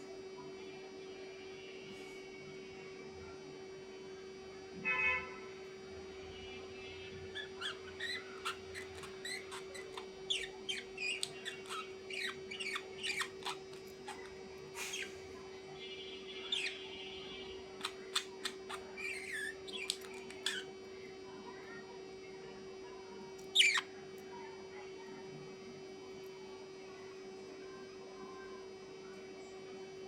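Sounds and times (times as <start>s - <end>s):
small birds chirping: 6.6s - 20.7s, 23.4s - 23.9s.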